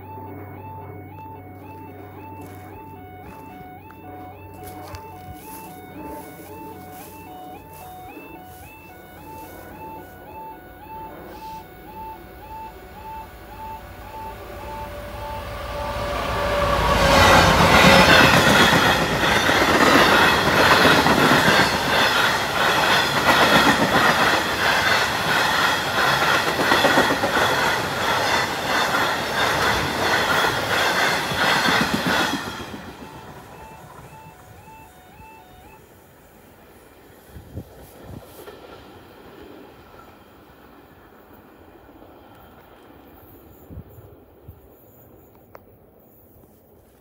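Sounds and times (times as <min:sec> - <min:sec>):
level crossing warning alarm: 0:00.0 - 0:36.6
freight train passing loudly: 0:00.0 - 0:46.2.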